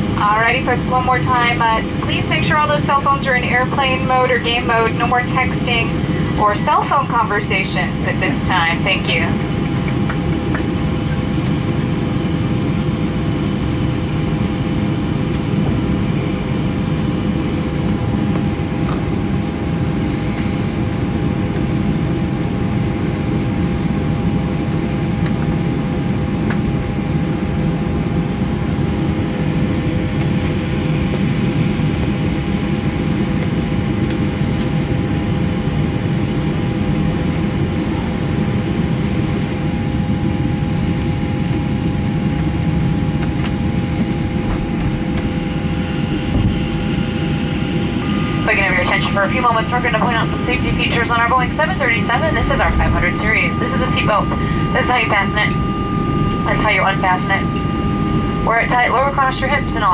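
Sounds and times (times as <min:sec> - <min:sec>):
constant whining tones: 0:00.0 - 0:23.2, 0:40.8 - 0:59.9
aircraft cabin rumble: 0:00.0 - 0:35.2, 0:39.1 - 0:59.9.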